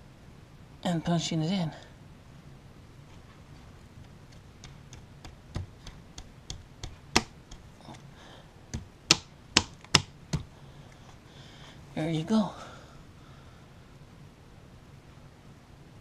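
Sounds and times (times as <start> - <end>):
sharp plastic clicks and pops: 4.3 - 7.7, 8.7 - 10.5.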